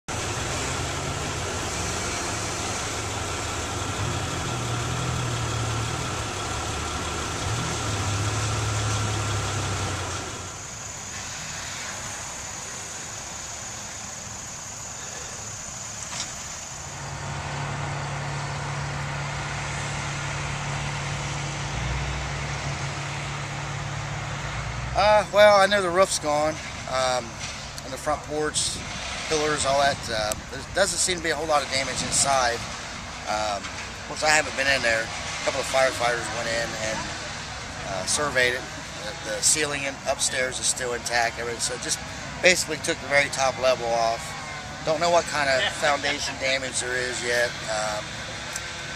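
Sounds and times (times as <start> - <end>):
engine hum: 0.0 - 48.9.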